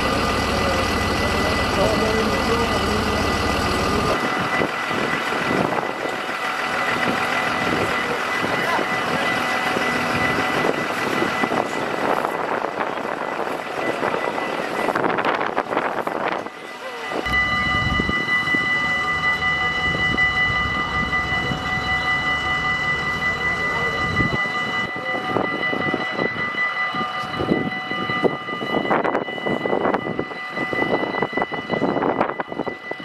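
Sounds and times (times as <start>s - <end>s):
people's voices: 0.0s - 4.2s, 7.0s - 13.2s, 18.5s - 27.4s
train whine: 0.0s - 33.0s.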